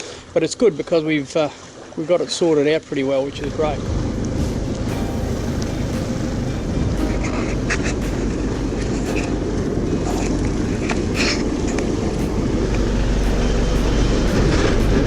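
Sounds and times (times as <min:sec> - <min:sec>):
boat motor running: 0:03.4 - 0:15.0.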